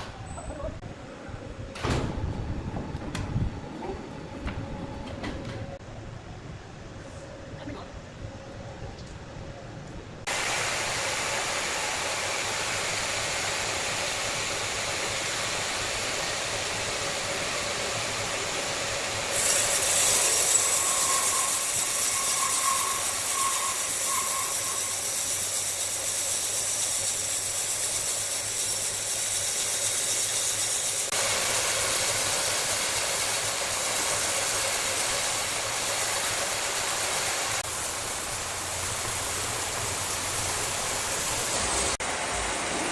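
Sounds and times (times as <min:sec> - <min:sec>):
wood saw hissing and whirring: 0:10.3 - 0:42.9.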